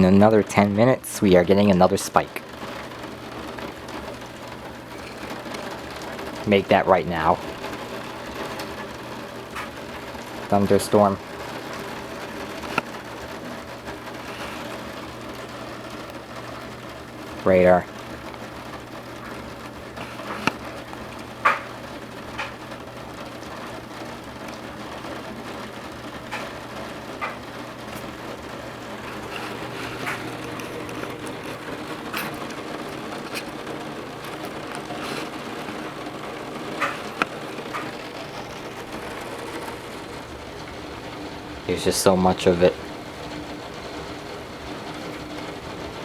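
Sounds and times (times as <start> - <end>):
heavy rain pouring: 0.0 - 46.0
drops tapping a hard surface: 20.0 - 21.8, 29.0 - 39.8.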